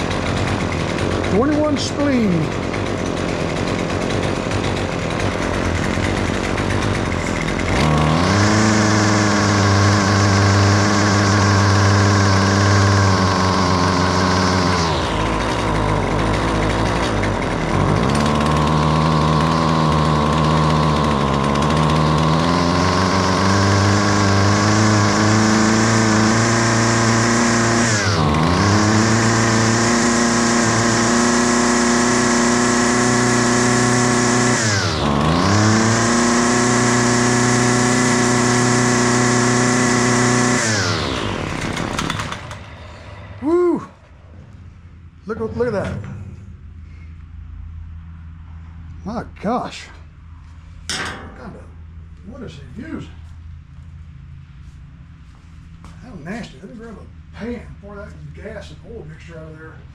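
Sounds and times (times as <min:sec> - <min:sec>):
string trimmer engine revving: 0:00.0 - 0:44.0.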